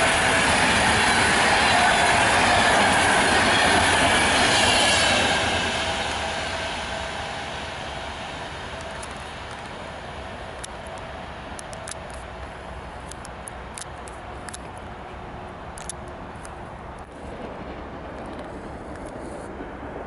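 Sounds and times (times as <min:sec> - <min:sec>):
train rumbling on track: 0:00.0 - 0:20.0
sharp clicks: 0:10.5 - 0:14.9, 0:15.7 - 0:17.2.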